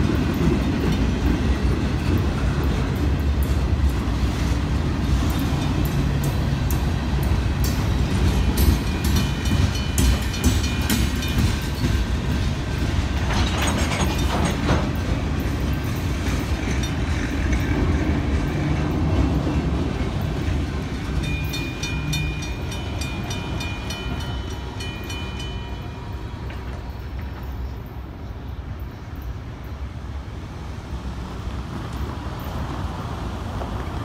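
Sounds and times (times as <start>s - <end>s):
train wheels rumbling on rail: 0.0s - 34.0s
wheel and coupler clanks: 7.8s - 19.2s.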